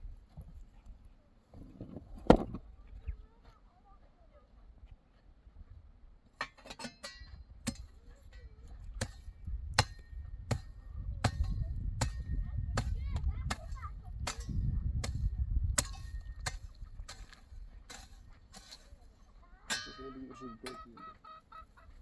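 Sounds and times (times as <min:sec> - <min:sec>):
hand tool striking with clang: 0:06.4 - 0:19.0, 0:19.6 - 0:20.8.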